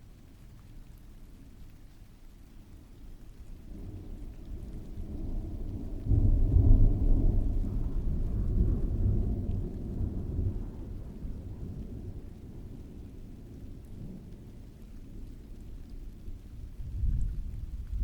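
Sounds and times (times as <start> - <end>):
steady rain: 0.0 - 18.0
thunder rumbling: 3.7 - 14.7, 15.5 - 18.0.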